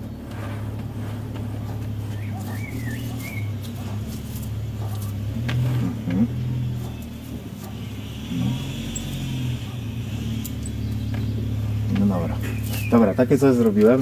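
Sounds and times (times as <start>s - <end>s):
vehicle engine humming: 0.0s - 14.0s
scissors snipping twigs: 2.1s - 7.8s, 10.2s - 14.0s.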